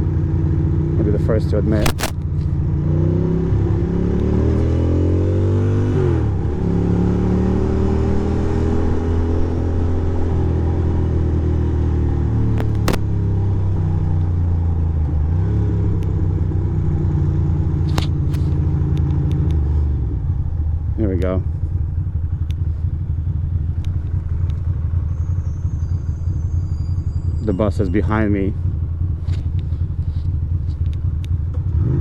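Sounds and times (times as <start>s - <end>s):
motorcycle engine revving: 0.0s - 32.0s
sharp clicks: 1.8s - 2.5s, 12.6s - 13.1s, 17.8s - 19.6s, 22.4s - 22.6s.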